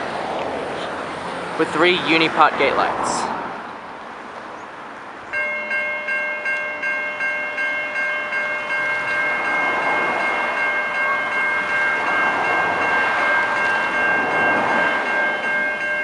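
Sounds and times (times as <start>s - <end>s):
level crossing bells ringing: 5.3s - 16.0s.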